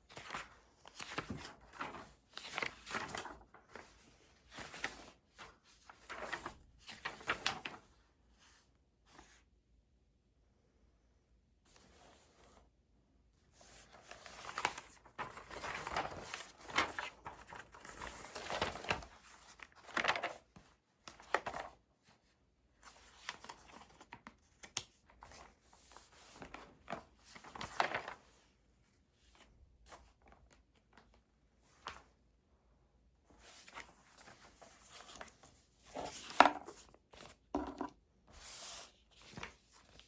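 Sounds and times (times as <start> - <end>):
paper rustling: 0.1 - 7.9, 13.6 - 21.8, 22.8 - 28.4, 33.4 - 40.0.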